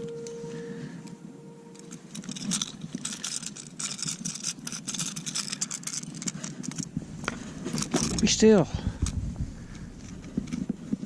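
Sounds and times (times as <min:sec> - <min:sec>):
fish thrashing with hooks jangling: 0:01.8 - 0:06.9.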